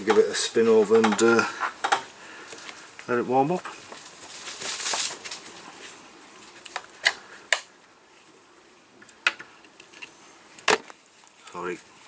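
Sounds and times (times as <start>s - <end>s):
tools clicking and knocking: 0.0s - 0.3s, 1.0s - 2.1s.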